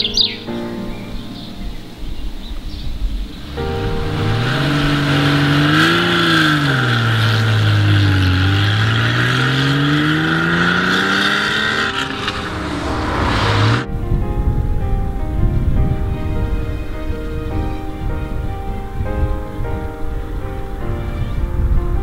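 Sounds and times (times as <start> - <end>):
car engine revving under load: 3.1 - 14.1.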